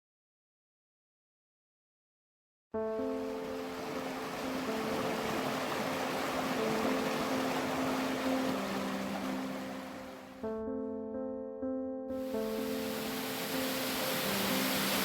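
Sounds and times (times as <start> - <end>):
soft piano music: 2.8 - 15.0
water rushing: 3.0 - 10.4, 12.2 - 15.0.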